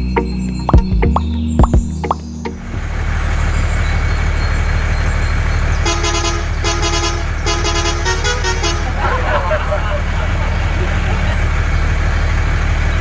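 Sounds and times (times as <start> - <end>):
vehicle horn tooting: 5.8 - 10.1.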